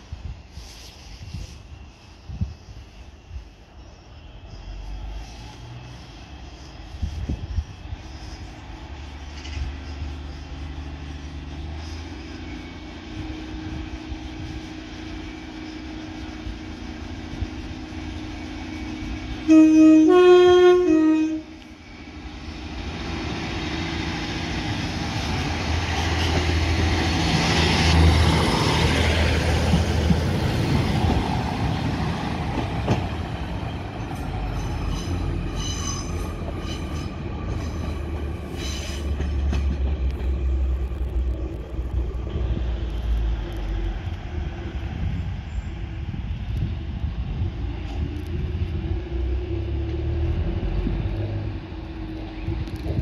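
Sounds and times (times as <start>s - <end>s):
diesel railcar rumbling past: 0.0s - 53.0s
high wheel squeals: 33.6s - 39.8s.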